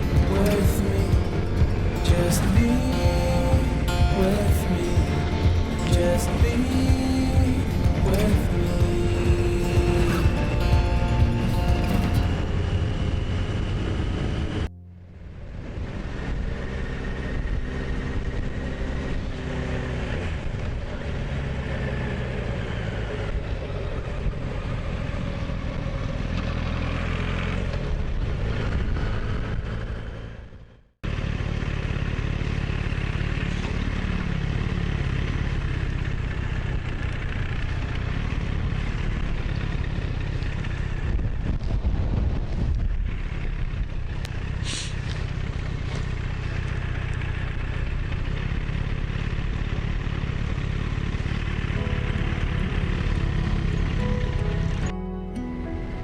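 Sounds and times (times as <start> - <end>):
motorcycle engine running: 0.0 - 55.9
road and wind noise: 0.0 - 56.0.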